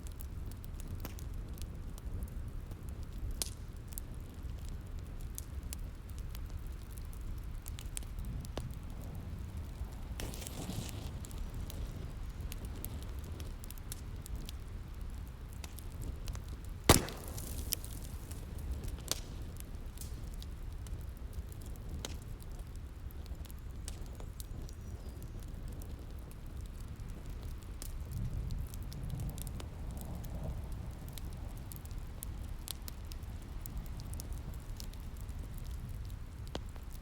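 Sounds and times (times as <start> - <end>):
wood fire crackling: 0.0 - 37.0
fire hissing: 8.7 - 14.2, 16.7 - 20.2.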